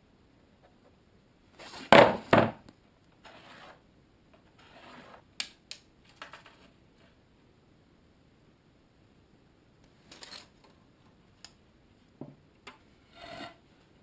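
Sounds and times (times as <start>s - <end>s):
wood rubbing or scraping: 3.2s - 3.8s, 4.5s - 5.2s, 13.0s - 13.7s.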